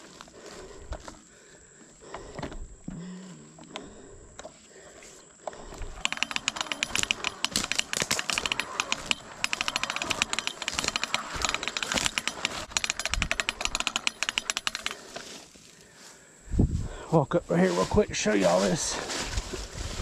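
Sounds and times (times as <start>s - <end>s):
fence reel ratchet clicks: 5.6s - 15.2s.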